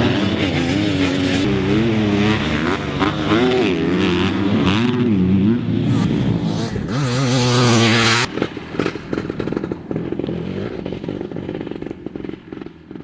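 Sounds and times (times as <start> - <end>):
dirt bike engine revving: 0.0 - 12.8.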